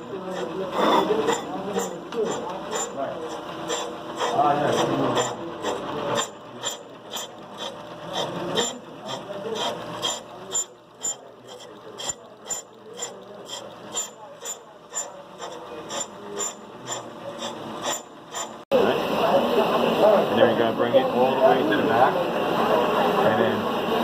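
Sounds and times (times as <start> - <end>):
brake lathe machine noise: 0.0 - 24.0
sharp ticks of cutting: 3.7 - 18.6.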